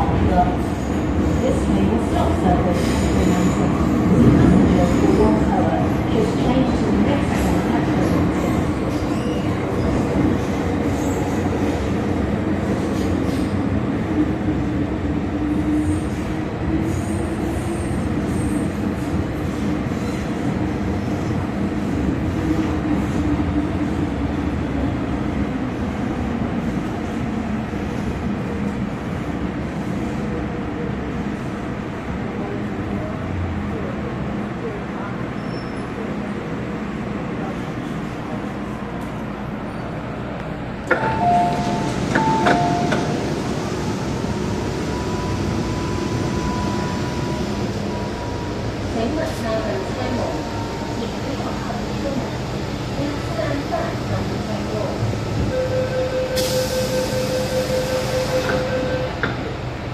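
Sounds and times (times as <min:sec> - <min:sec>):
train carriage running noise: 0:00.0 - 0:59.9
train wheels on rails: 0:40.3 - 0:59.9.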